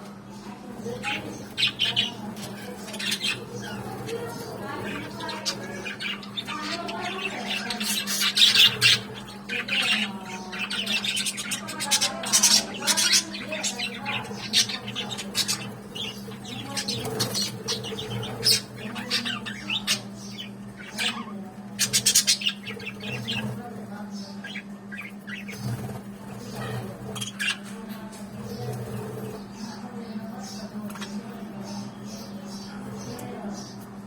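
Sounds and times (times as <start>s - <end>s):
budgerigars chattering and squawking: 0.3s - 34.0s.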